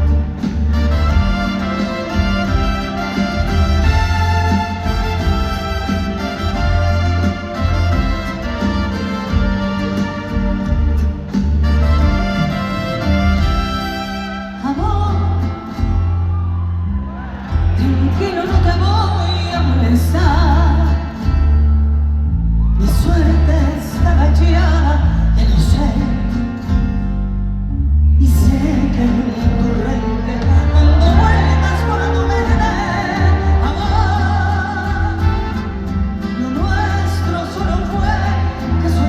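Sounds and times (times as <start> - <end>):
band with heavy bass: 0.0 - 39.0
woman singing with vibrato: 14.5 - 15.7, 17.6 - 21.4, 22.8 - 26.3, 28.2 - 39.0.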